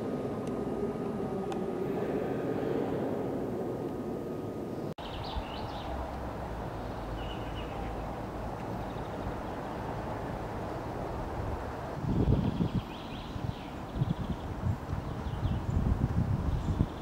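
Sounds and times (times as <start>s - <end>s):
low background rumble: 0.0s - 17.0s
small birds chirping: 4.7s - 10.0s, 12.0s - 17.0s.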